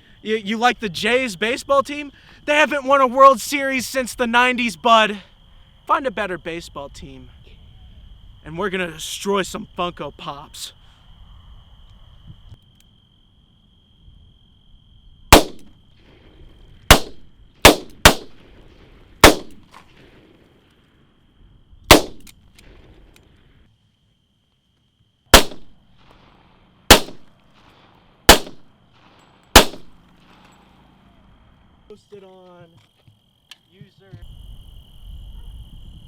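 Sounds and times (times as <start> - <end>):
gunshots: 15.3 - 15.7, 16.9 - 18.6, 19.2 - 20.4, 21.9 - 22.8, 25.3 - 25.8, 26.9 - 30.1.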